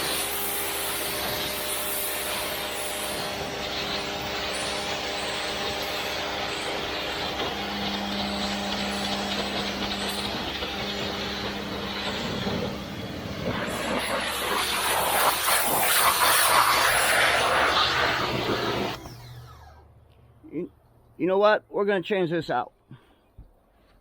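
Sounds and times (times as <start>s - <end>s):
water spray hissing: 0.0s - 19.0s
pressure washer motor humming: 0.0s - 20.6s.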